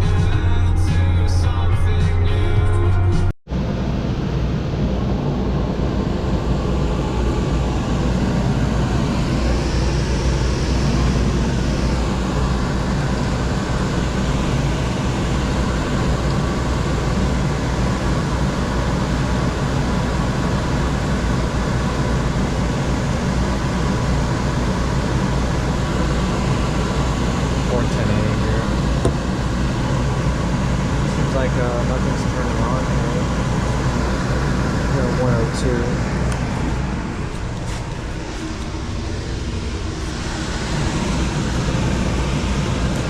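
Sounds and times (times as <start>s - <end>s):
vehicle driving road noise: 27.7s - 43.0s.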